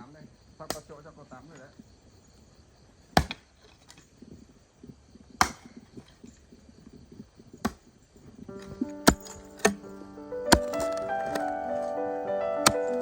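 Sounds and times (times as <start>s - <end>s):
chopping blows on bamboo: 3.2s - 3.5s, 5.4s - 5.9s, 9.0s - 9.8s, 10.5s - 11.5s.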